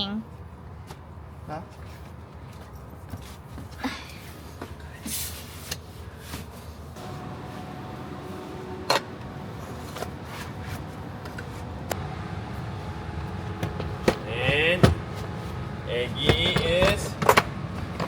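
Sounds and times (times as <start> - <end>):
car interior rumble: 7.0 - 18.0.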